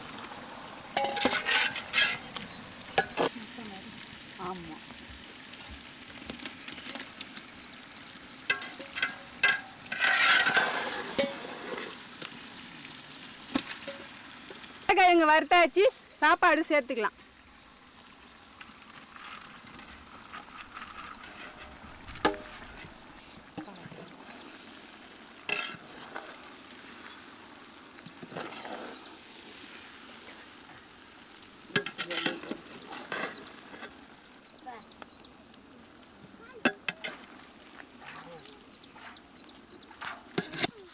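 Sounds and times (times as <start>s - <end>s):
low sizzle of frying: 0.0s - 15.2s, 17.2s - 40.9s
metal spoon scraping pan: 1.0s - 3.3s, 8.3s - 12.0s, 20.9s - 27.2s, 28.1s - 34.1s, 39.9s - 40.8s.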